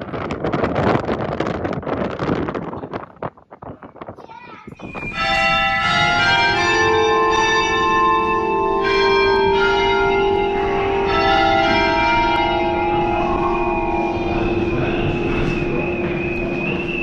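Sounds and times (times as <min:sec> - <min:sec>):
wind rumble on microphone: 0:00.0 - 0:17.0
church bells ringing: 0:04.8 - 0:17.0.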